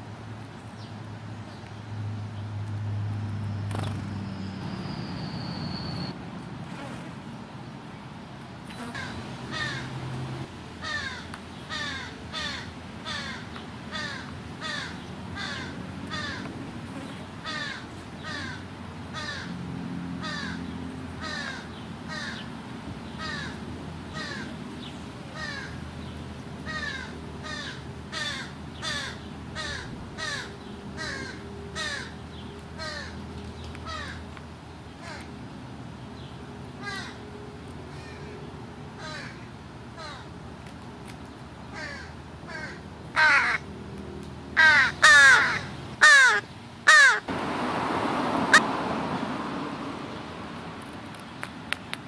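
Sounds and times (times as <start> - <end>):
crows cawing: 9.0 - 9.9, 10.8 - 16.5, 17.4 - 18.6, 19.2 - 19.5, 20.2 - 20.6, 21.2 - 22.4, 23.2 - 23.6, 24.2 - 24.5, 26.7 - 32.2, 32.8 - 33.2, 33.9 - 34.2, 36.8 - 37.2, 39.0 - 39.4, 40.0 - 40.3, 41.7 - 43.6, 44.6 - 47.3.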